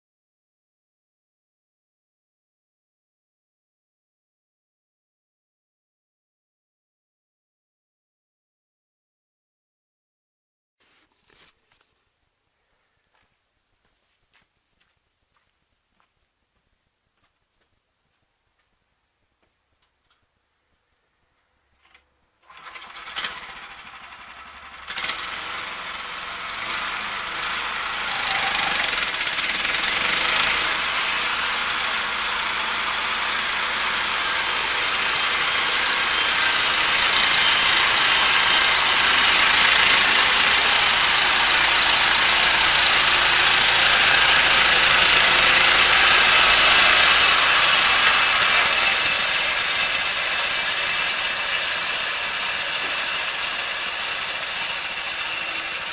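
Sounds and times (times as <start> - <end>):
small petrol engine running: 22.4 - 55.9.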